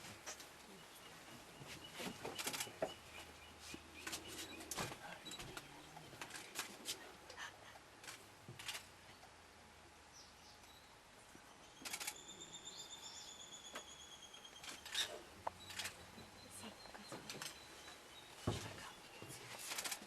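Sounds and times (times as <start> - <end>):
faint lakeside ambience: 0.0 - 20.0
sharp clicks: 11.8 - 12.2.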